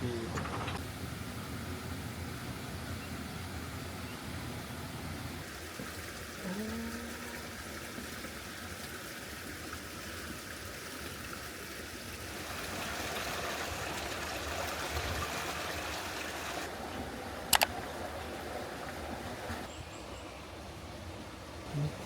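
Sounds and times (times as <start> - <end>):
trickle of running water: 5.4 - 16.7.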